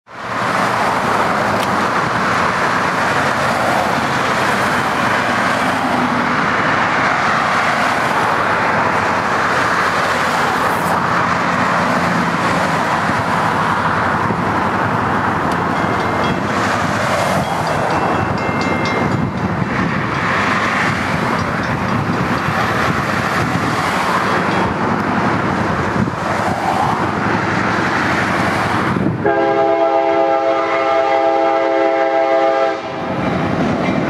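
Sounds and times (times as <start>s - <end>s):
passenger train noise: 0.1s - 34.0s.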